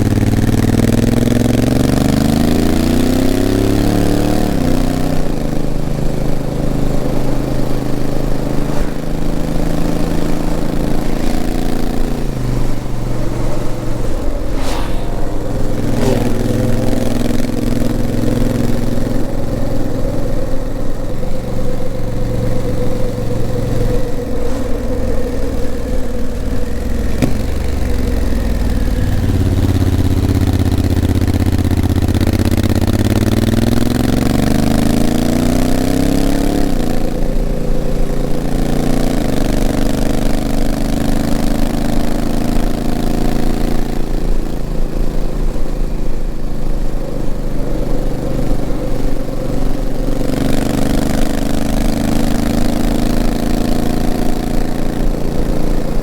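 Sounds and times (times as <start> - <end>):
motorcycle engine changing gear: 15.2 - 56.0.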